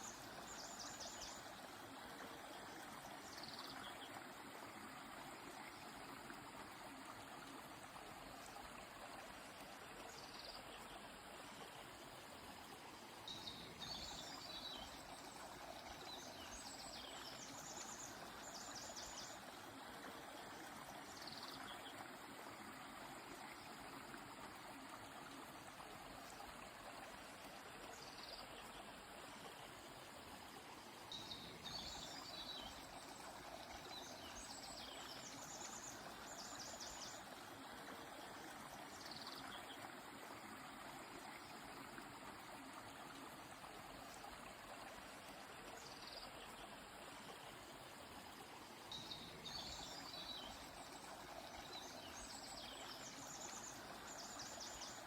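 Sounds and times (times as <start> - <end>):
stream flowing: 0.0 - 55.0
songbird singing: 31.1 - 37.3, 48.9 - 55.0.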